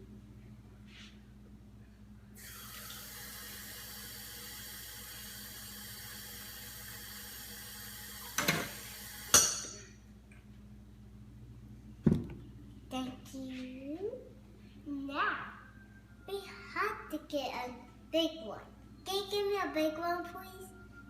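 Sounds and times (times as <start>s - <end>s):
water running from a tap: 2.4s - 9.4s.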